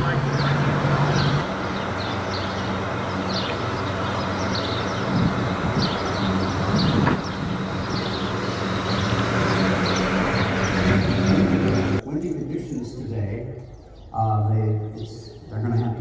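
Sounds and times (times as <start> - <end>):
vehicle engine running: 0.0 - 12.0
wind: 0.0 - 16.0.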